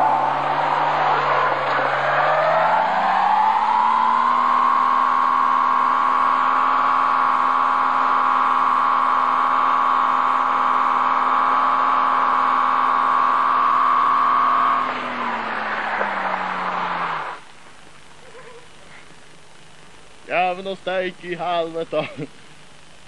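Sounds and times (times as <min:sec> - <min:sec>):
wheels spinning on gravel: 0:00.0 - 0:17.4
car engine at high revs: 0:00.0 - 0:18.5.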